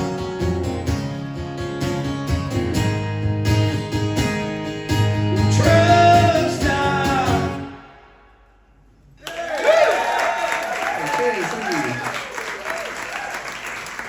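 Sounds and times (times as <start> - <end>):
strummed acoustic guitar: 0.0 - 8.1.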